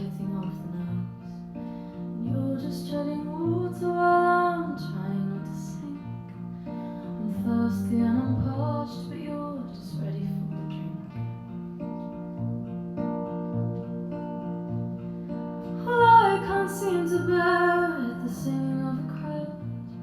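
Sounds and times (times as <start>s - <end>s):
woman singing: 0.0s - 1.5s, 2.1s - 11.3s, 15.7s - 20.0s
acoustic guitar strummed: 0.0s - 20.0s.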